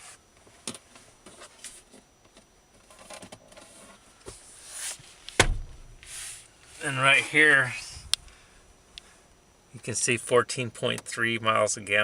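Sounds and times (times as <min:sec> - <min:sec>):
soft hiss: 0:03.6 - 0:10.4.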